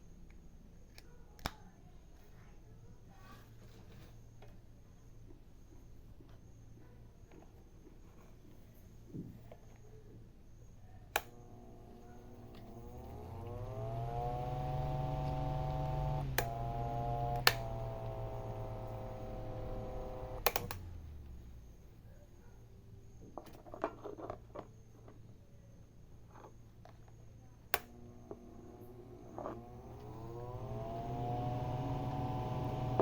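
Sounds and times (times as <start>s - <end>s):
fan switch clicks: 11.1s - 11.5s, 12.4s - 21.4s, 27.8s - 28.0s
electric fan motor humming: 11.1s - 21.9s, 27.7s - 33.0s
light handling clicks: 12.4s - 21.4s.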